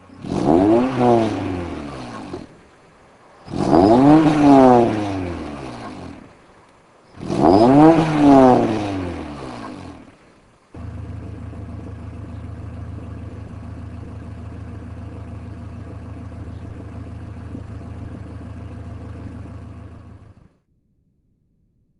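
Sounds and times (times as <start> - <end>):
car engine idling: 0.0 - 20.6.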